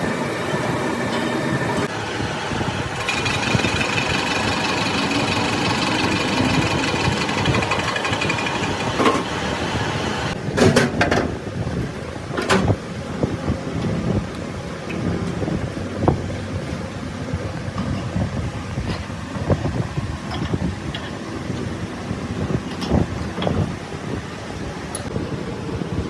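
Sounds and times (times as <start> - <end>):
workshop machinery whining: 0.0 - 10.4.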